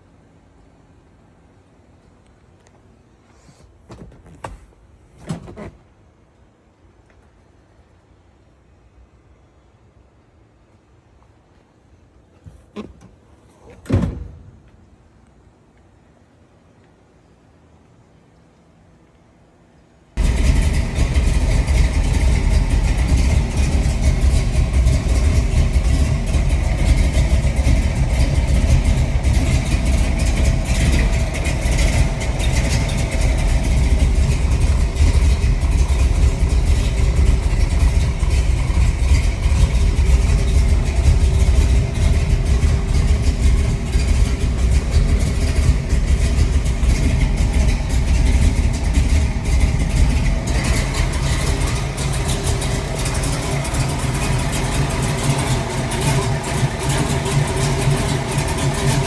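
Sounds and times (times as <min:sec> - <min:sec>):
car engine running with deep exhaust: 0:20.2 - 0:59.0.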